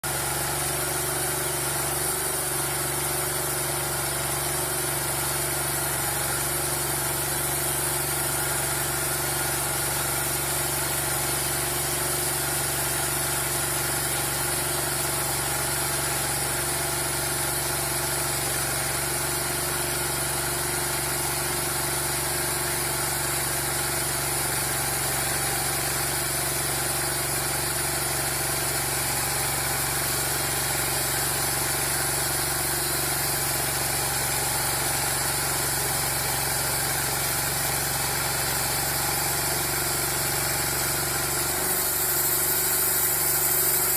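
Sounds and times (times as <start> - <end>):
sawmill machinery droning: 0.0 - 43.9.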